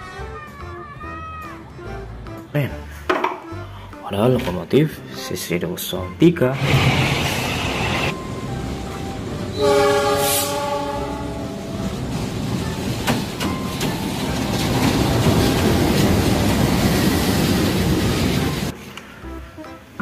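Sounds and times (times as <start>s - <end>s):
train rumble and wheel clatter: 6.6s - 18.8s
locomotive horn: 9.5s - 11.7s.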